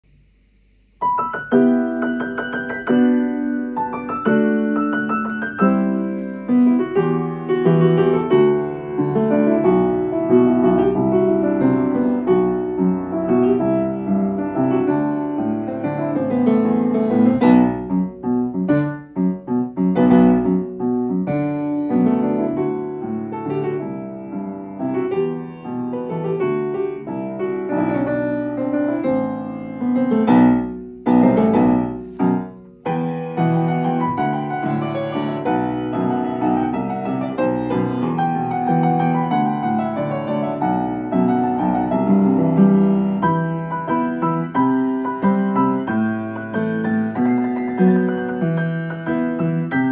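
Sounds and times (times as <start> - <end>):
solo piano: 0.0 - 49.9.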